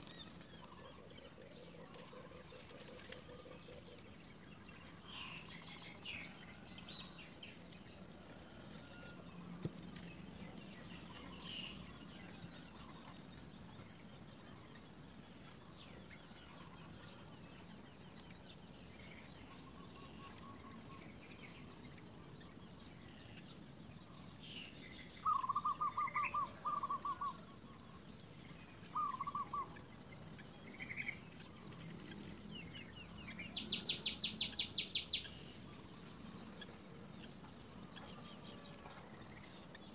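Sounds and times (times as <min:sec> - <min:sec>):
bird chirps: 0:00.0 - 0:39.9
bird clucking notes: 0:25.3 - 0:32.4
fast high bird chatter: 0:25.3 - 0:39.9.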